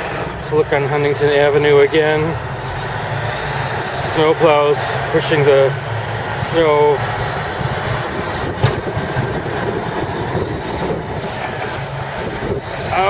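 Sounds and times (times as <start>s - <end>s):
snowplow scraping snow: 6.3s - 13.0s
sharp knock: 8.6s - 9.2s.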